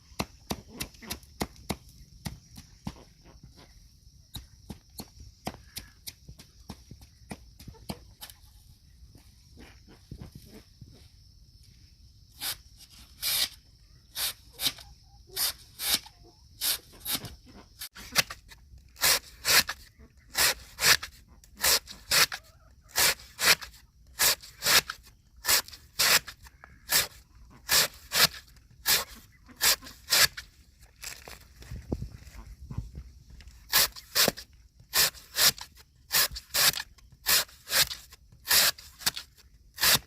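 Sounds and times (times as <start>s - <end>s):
hand tool rasping strokes: 12.4s - 13.6s, 14.2s - 31.4s, 33.6s - 40.0s.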